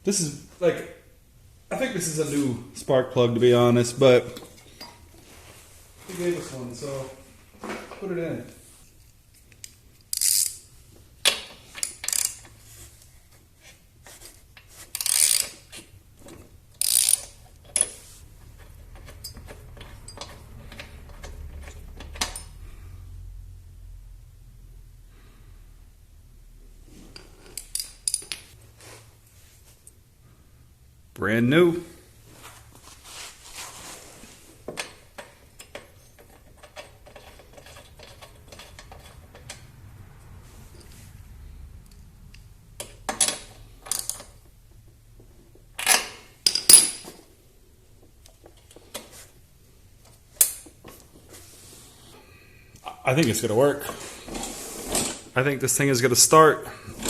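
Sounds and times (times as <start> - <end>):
ratchet clicking: 9.6 - 10.7, 11.8 - 12.5, 14.9 - 15.7, 16.8 - 17.9.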